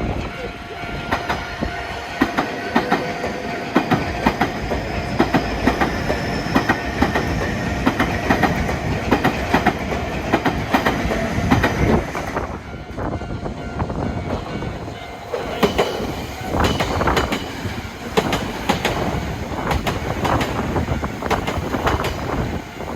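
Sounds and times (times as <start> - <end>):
train rumble: 0.0 - 22.9
train wheels clattering over rail joints: 2.2 - 12.6, 15.3 - 22.9.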